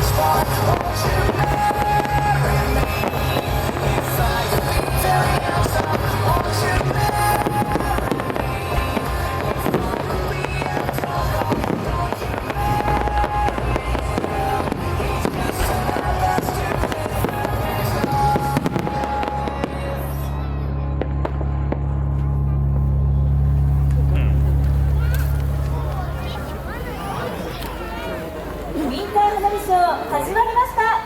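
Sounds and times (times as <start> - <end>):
fireworks bursting and crackling: 0.0 - 20.4
music from loudspeakers: 0.0 - 26.1
low steady hum: 0.0 - 28.8.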